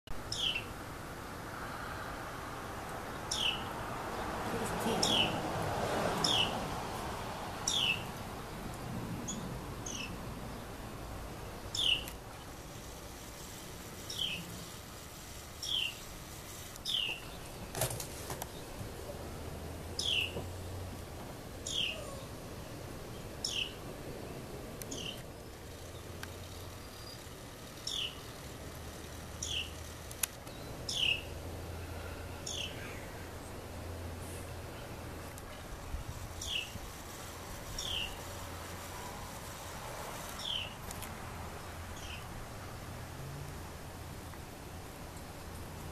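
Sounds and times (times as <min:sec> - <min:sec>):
bird chirping: 0:00.2 - 0:00.7, 0:03.2 - 0:03.7, 0:06.2 - 0:06.6, 0:07.6 - 0:08.1, 0:09.3 - 0:10.7, 0:11.7 - 0:12.5, 0:14.0 - 0:14.5, 0:15.6 - 0:16.2, 0:16.8 - 0:17.8, 0:20.0 - 0:20.4, 0:21.6 - 0:22.4, 0:23.1 - 0:23.8, 0:24.9 - 0:28.4, 0:29.4 - 0:31.4, 0:32.4 - 0:33.1, 0:36.3 - 0:36.8, 0:37.8 - 0:38.3, 0:40.4 - 0:40.8, 0:41.6 - 0:42.3
steady background hiss: 0:00.2 - 0:45.9
bird calls sweeping downward: 0:21.6 - 0:22.4.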